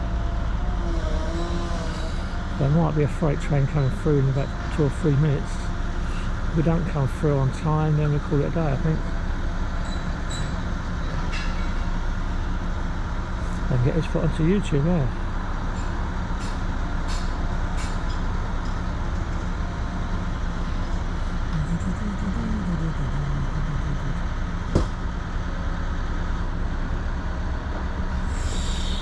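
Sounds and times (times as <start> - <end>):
low mechanical rumble: 0.0 - 29.0
sharp knock: 24.7 - 25.0.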